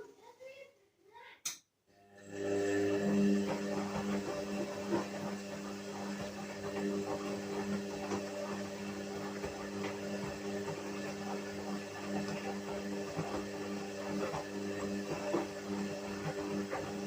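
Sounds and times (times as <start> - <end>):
washing machine motor hum: 2.0 - 17.0.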